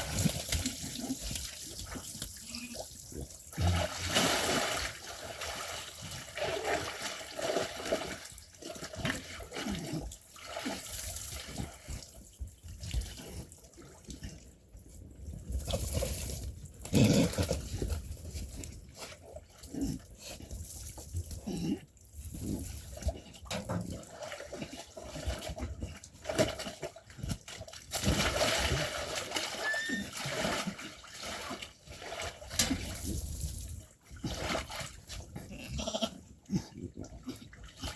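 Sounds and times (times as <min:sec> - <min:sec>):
rough watery noise: 0:00.0 - 0:37.9.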